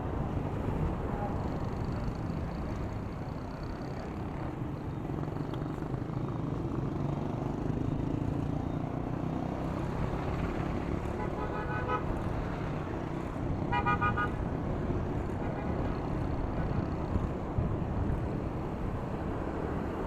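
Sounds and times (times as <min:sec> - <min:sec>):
road traffic noise: 0:00.0 - 0:20.0
vehicle horn tooting: 0:13.7 - 0:14.4.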